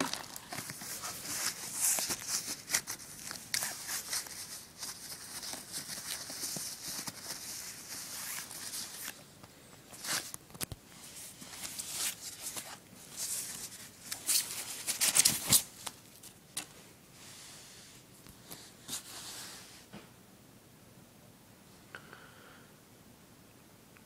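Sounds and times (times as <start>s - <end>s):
packaging rustling and crinkling: 0.0s - 9.2s, 9.9s - 16.6s.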